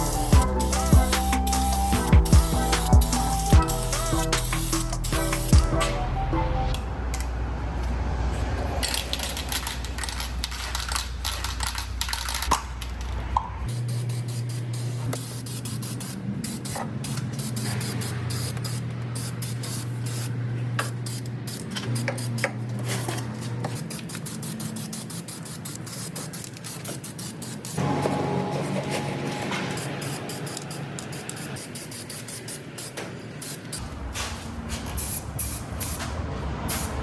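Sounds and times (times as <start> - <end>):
spray paint can hissing: 0.0 - 5.7, 8.8 - 13.0, 13.6 - 27.9, 29.4 - 36.1, 36.7 - 37.0
background music: 0.0 - 7.0.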